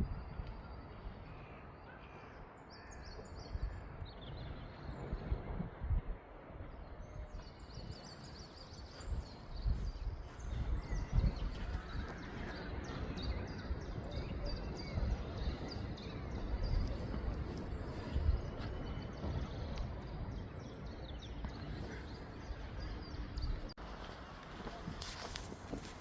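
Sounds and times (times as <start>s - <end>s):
small birds chirping: 7.0s - 26.0s.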